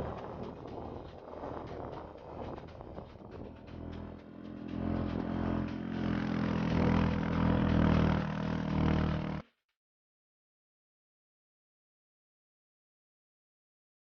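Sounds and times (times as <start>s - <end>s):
vehicle engine running: 0.0s - 9.4s.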